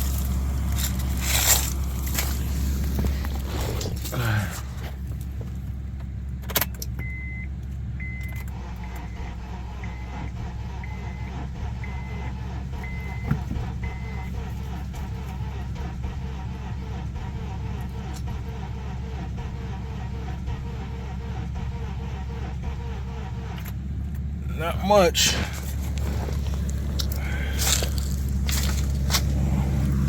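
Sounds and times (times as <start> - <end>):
truck engine idling: 0.0 - 30.0
car warning chime beeping: 6.6 - 14.8.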